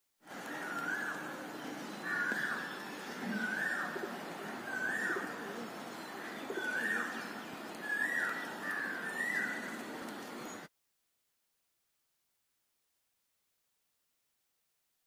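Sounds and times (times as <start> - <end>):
steady background hiss: 0.3 - 10.7
bird calling falling notes: 0.4 - 1.4, 2.0 - 10.7.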